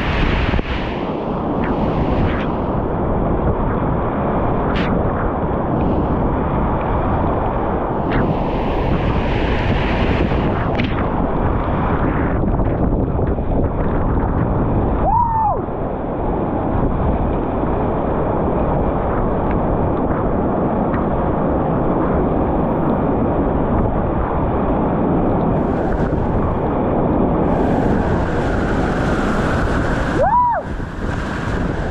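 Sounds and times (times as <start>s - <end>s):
wind buffeting microphone: 0.0s - 31.9s
whitewater roaring: 25.4s - 31.9s.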